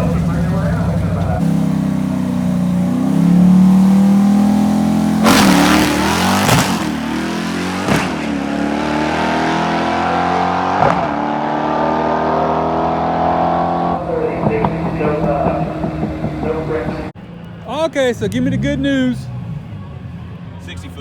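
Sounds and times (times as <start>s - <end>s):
car engine running: 0.0s - 20.4s
sharp pops: 5.2s - 7.0s, 7.8s - 8.3s.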